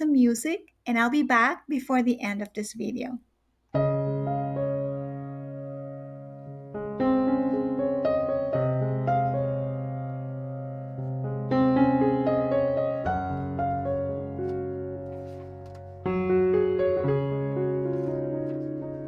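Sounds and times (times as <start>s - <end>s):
gentle piano chords: 3.8s - 19.0s.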